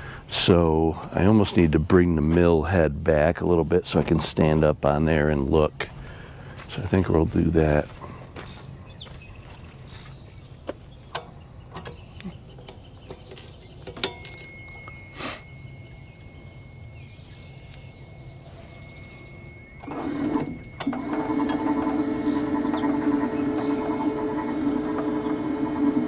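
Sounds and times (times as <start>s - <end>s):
sawmill carriage drive whining: 12.8s - 26.0s.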